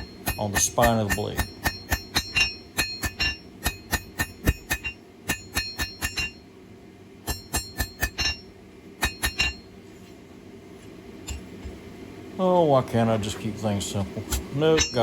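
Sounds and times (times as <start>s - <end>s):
hammer striking steel on anvil: 0.0s - 6.5s, 7.2s - 9.7s, 14.3s - 15.0s.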